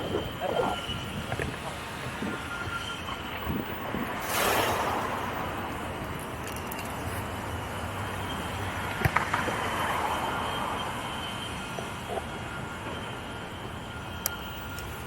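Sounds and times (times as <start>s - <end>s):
wind rushing over microphone: 0.0s - 6.3s
street traffic: 0.0s - 15.0s.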